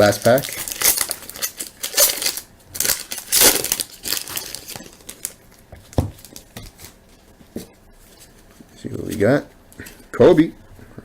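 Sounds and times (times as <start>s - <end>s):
card pack wrapper crinkling and tearing: 0.0s - 5.4s.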